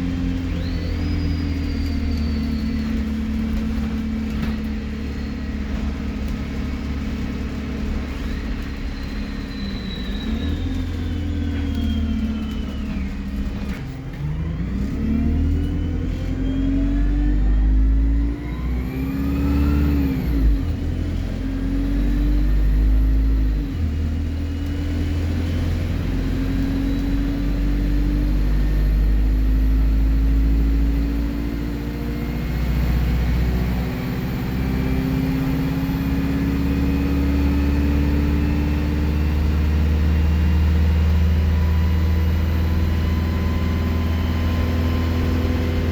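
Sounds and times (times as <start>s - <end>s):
bus diesel engine accelerating: 0.0s - 45.9s
high turbo whistle: 8.0s - 13.7s.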